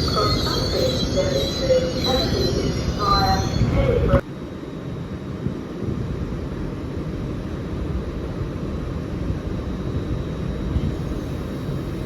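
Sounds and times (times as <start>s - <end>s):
train rumbling: 0.0s - 4.3s.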